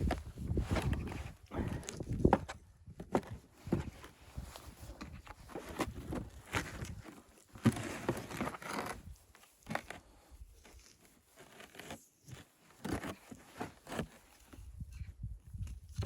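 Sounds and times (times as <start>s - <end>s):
crinkling and crunching: 3.1s - 14.6s.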